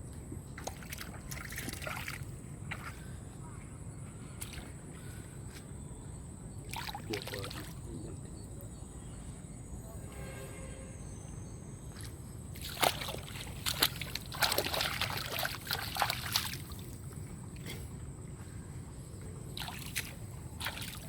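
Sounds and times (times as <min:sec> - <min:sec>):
water splashing and sloshing: 0:00.1 - 0:03.2, 0:04.3 - 0:05.7, 0:06.6 - 0:08.0, 0:11.8 - 0:21.0.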